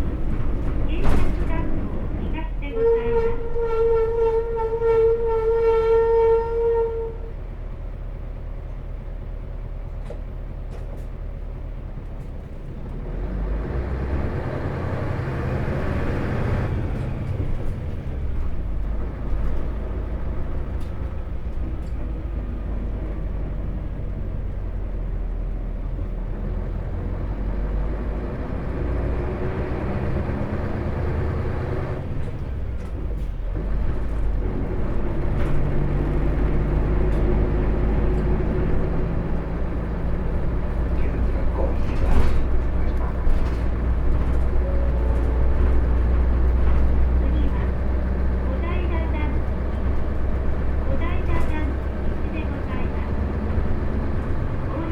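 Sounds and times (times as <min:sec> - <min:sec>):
bus diesel engine running: 0:00.0 - 0:54.9.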